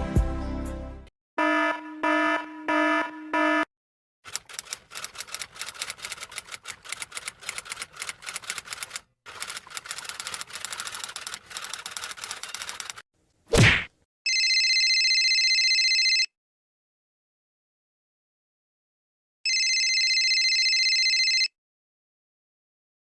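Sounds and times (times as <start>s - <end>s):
typewriter clacking: 4.3s - 13.0s.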